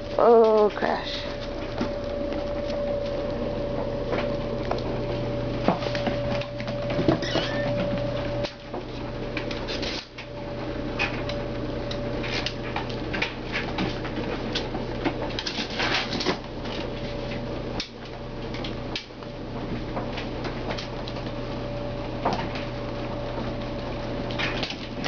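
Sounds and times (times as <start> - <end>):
steady hum: 0.0 - 25.0
kittens scampering and tussling: 5.2 - 10.1.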